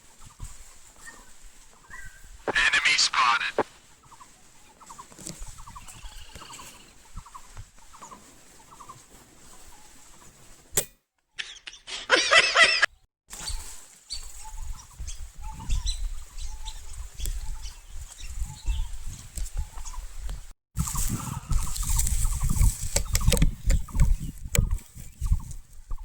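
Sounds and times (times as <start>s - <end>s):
bird calls: 0.2s - 10.4s, 11.3s - 12.1s.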